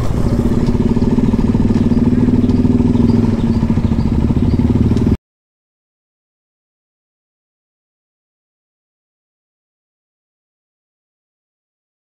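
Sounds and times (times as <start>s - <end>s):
motorcycle engine running: 0.0s - 5.2s.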